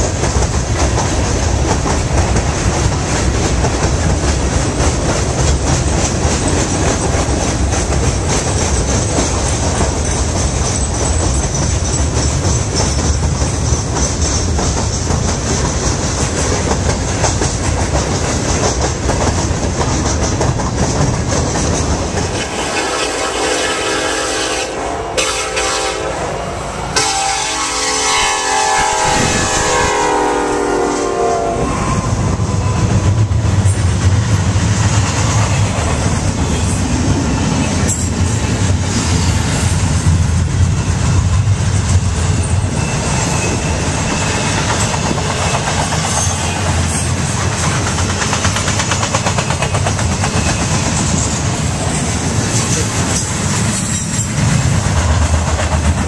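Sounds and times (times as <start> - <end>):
wheels clacking over rail joints: 0.0 - 23.0, 33.0 - 56.0
diesel locomotive rumble: 0.0 - 56.0
train horn blasts: 22.3 - 33.3.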